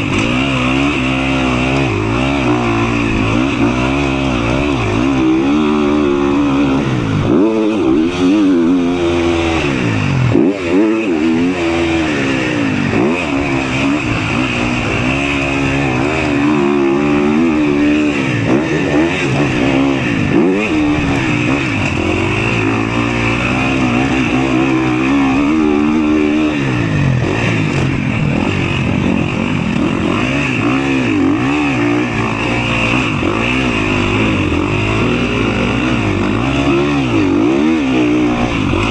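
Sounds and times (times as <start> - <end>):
motocross bike engine revving: 0.0 - 38.9.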